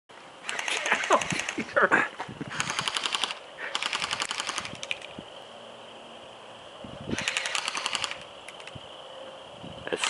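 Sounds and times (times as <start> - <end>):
airsoft guns firing bursts: 2.6 - 4.9, 7.2 - 8.2.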